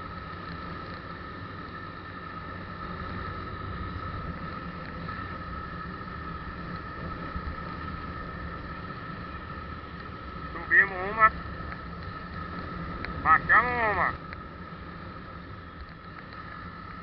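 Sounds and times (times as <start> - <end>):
tyre and road noise: 0.0 - 17.0
vehicle engine drone: 0.0 - 17.0
high whine: 10.3 - 16.1.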